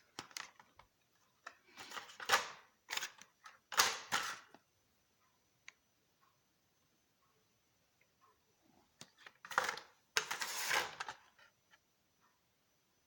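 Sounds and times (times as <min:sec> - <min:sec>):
plastic packs clattering and rustling: 0:09.4 - 0:11.3.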